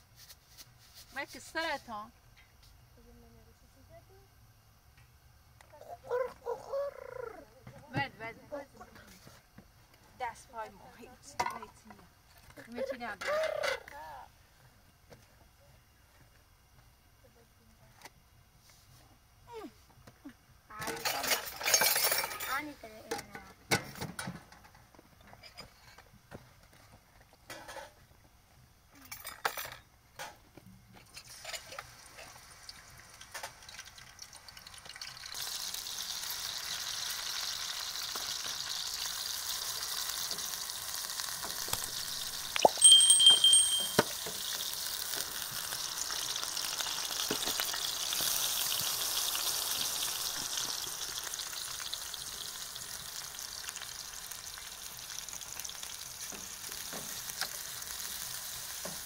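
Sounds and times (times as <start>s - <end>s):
food sizzling in a pan: 20.7s - 23.1s, 31.0s - 59.0s
high-pitched ring: 42.6s - 44.3s.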